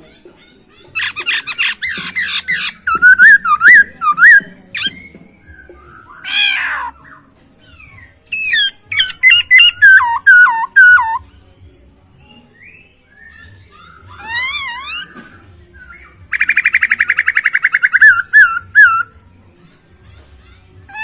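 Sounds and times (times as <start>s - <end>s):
bird singing whistled phrases: 1.0s - 7.2s, 7.8s - 11.2s, 12.2s - 19.1s
harsh bird call: 5.8s - 11.2s, 15.9s - 19.1s.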